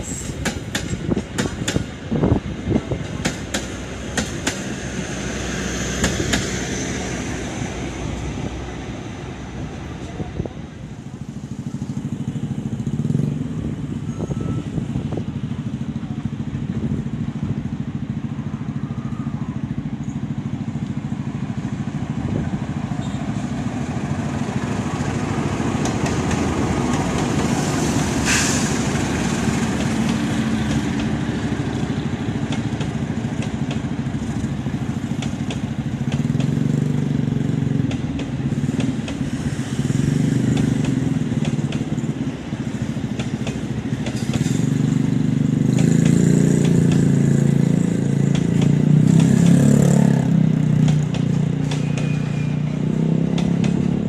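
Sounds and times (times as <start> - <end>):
locomotive engine running: 0.0 - 54.0
wheels clicking over rail joints: 24.0 - 54.0
short sharp hiss: 28.2 - 28.9.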